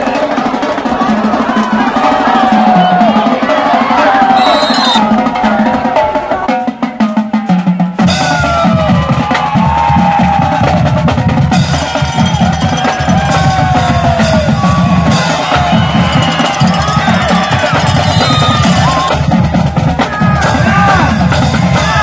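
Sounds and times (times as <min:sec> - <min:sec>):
drum kit and gliding melodic lead: 0:00.0 - 0:22.0
heavy bass beat: 0:09.8 - 0:22.0.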